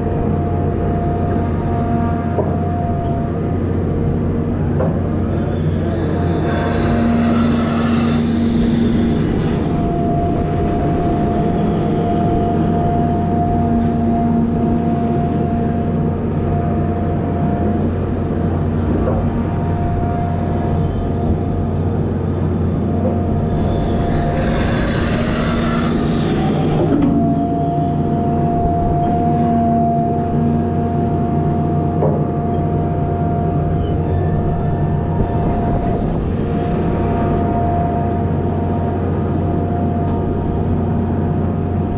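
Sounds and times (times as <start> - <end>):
diesel truck engine droning: 0.0 - 41.9
high whine: 0.0 - 41.9
loud hissing: 5.3 - 9.9, 23.4 - 27.0.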